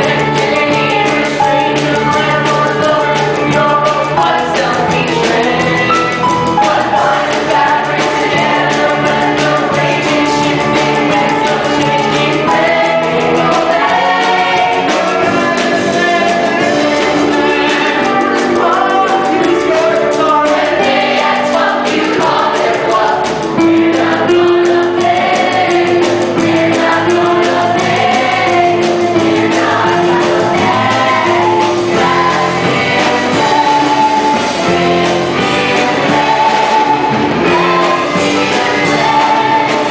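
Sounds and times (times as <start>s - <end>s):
cast singing in chorus: 0.0s - 39.9s
rock band accompaniment: 0.0s - 39.9s.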